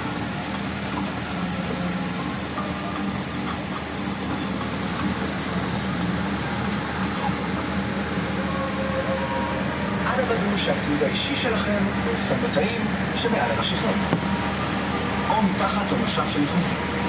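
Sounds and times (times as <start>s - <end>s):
cabin air-conditioning rush: 9.7s - 17.0s.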